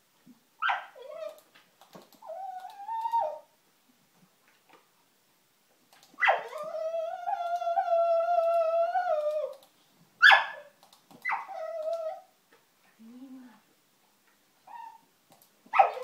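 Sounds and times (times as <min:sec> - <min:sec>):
dog whining: 0:00.6 - 0:01.4, 0:02.2 - 0:03.5, 0:06.2 - 0:09.6, 0:11.2 - 0:12.3, 0:14.6 - 0:15.1
dog yelping: 0:00.6 - 0:01.4, 0:02.2 - 0:03.5, 0:06.2 - 0:09.6, 0:10.2 - 0:12.3, 0:14.7 - 0:15.1, 0:15.7 - 0:16.0.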